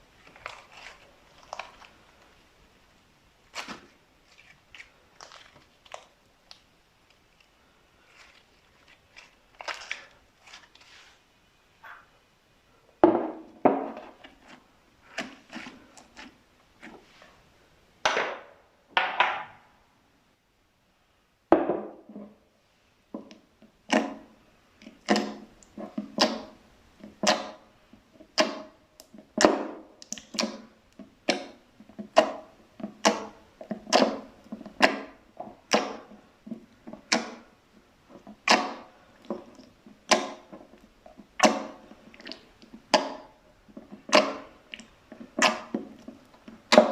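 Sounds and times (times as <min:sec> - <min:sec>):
slime squelching by hand: 0:00.1 - 0:02.4, 0:03.4 - 0:11.2, 0:23.8 - 0:46.9.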